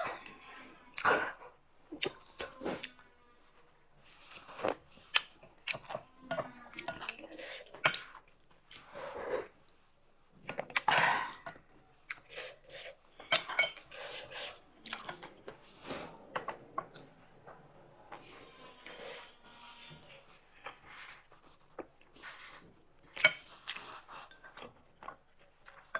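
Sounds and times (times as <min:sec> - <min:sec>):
utensils clinking on a bowl: 0:04.3 - 0:08.4, 0:11.3 - 0:15.4, 0:22.2 - 0:25.3.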